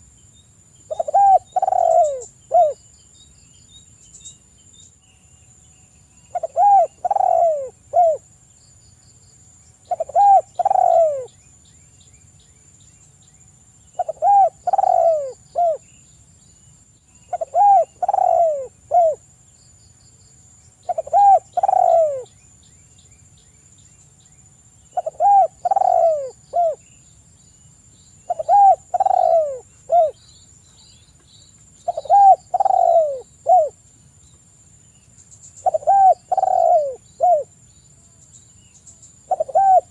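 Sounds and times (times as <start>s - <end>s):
dove cooing: 0.9s - 2.8s, 6.3s - 8.2s, 9.9s - 11.3s, 14.0s - 15.8s, 17.3s - 19.2s, 20.8s - 22.3s, 24.9s - 26.8s, 28.3s - 30.2s, 31.8s - 33.8s, 35.6s - 37.5s, 39.3s - 39.9s.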